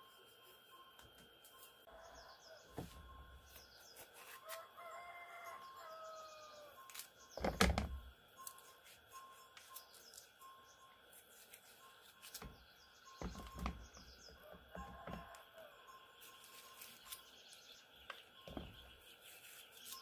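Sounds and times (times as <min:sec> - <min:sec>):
rooster crowing: 0:01.9 - 0:02.8, 0:04.4 - 0:06.9, 0:14.4 - 0:15.9.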